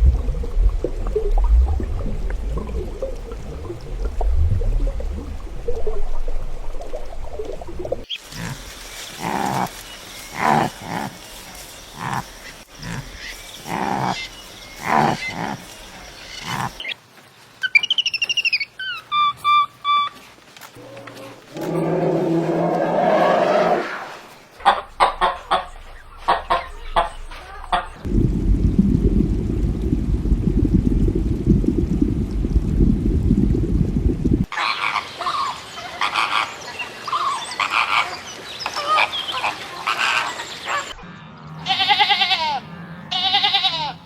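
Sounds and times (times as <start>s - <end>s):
deep rumbling animal calls: 20.8s - 29.2s.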